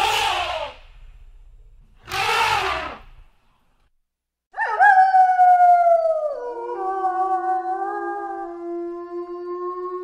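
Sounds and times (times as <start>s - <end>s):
wolf howling: 4.6s - 10.0s.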